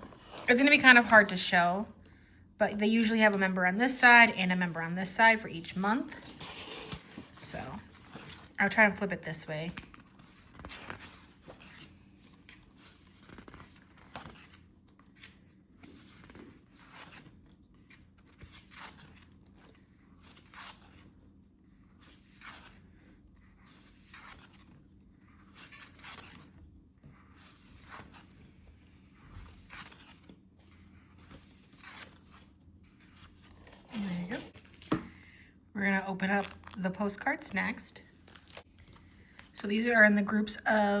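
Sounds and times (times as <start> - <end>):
paper pages rustling: 0.0 - 1.3, 6.0 - 35.1, 38.2 - 39.5.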